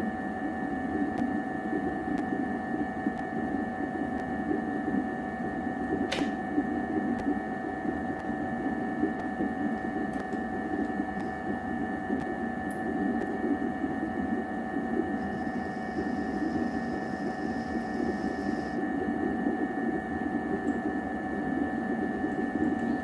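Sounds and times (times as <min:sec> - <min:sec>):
machine hum with whine: 0:00.0 - 0:23.0
sharp click: 0:06.1 - 0:06.4.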